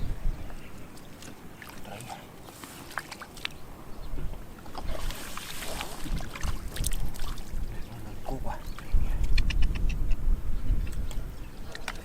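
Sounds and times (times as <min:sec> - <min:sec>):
water sloshing and splashing: 0:00.9 - 0:08.1.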